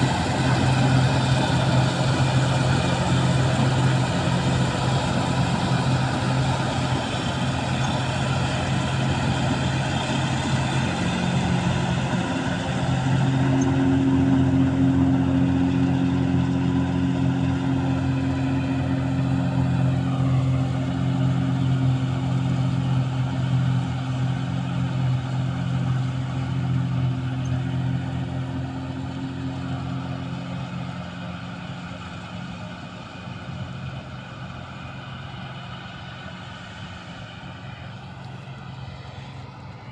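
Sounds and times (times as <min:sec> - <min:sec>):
harvester engine running: 0:00.0 - 0:39.9.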